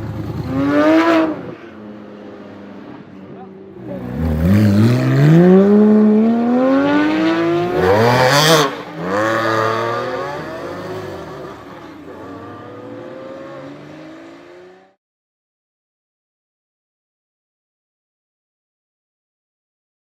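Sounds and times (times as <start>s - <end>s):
car engine accelerating: 3.8s - 15.0s.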